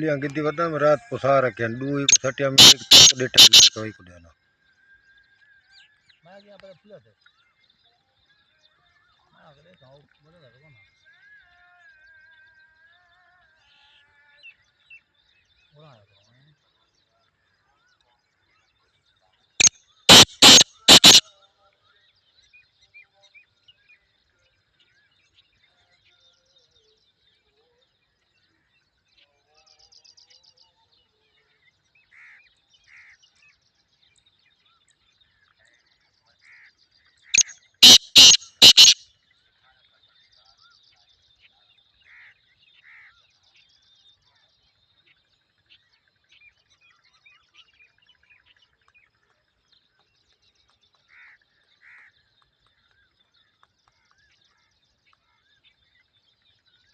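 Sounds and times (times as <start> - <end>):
small birds chirping: 0.0 - 4.2, 14.8 - 21.2, 28.0 - 56.9
francolin harsh call: 1.9 - 3.9, 20.1 - 21.2, 37.4 - 39.0.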